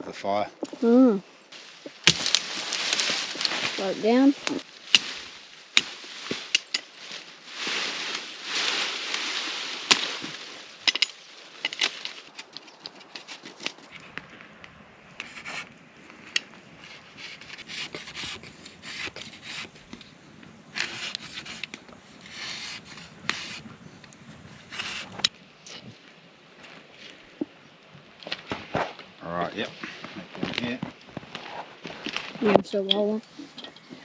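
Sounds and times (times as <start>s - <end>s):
blade scraping wooden stick: 10.9s - 13.9s, 16.3s - 20.1s, 20.7s - 23.7s, 24.7s - 25.3s.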